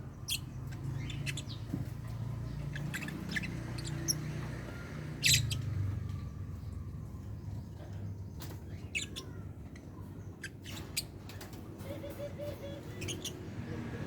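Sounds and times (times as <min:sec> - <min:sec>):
lovebirds chirping: 0:00.0 - 0:06.9, 0:07.8 - 0:11.2, 0:11.8 - 0:14.0.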